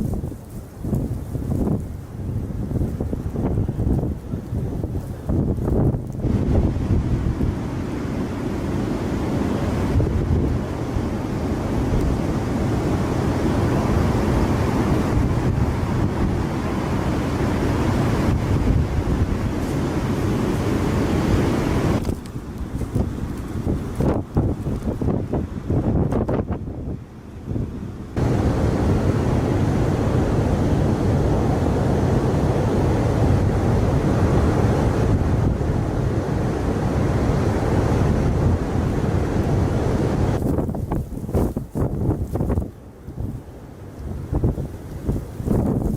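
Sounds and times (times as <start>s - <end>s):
surf: 0.0s - 26.5s
big waves breaking: 0.0s - 45.9s
strong wind blowing on microphone: 0.0s - 45.9s.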